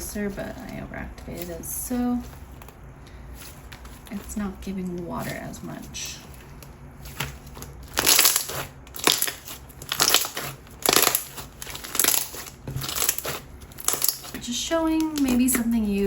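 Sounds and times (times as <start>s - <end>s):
slime squished by hand: 7.1s - 14.4s.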